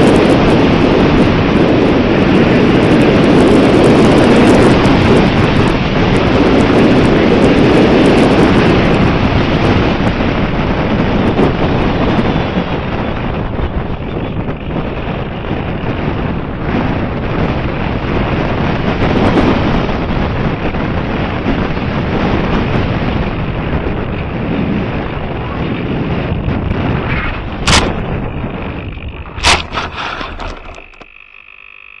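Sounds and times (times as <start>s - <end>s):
wind buffeting microphone: 0.0s - 31.0s
sharp knocks: 27.6s - 28.0s.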